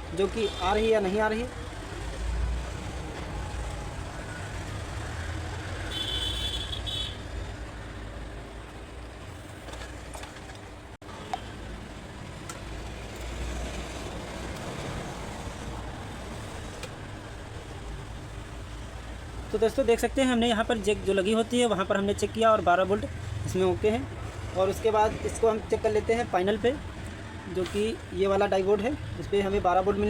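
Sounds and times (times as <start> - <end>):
distant road traffic rumble: 0.0 - 30.0.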